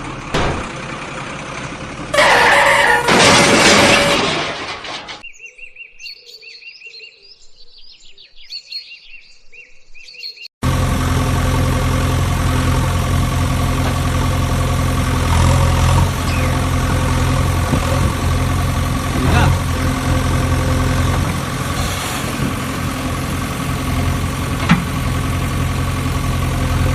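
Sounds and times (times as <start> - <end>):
engine idling: 0.0 - 5.2, 10.6 - 26.9
birds chirping: 5.2 - 10.5, 16.1 - 16.8.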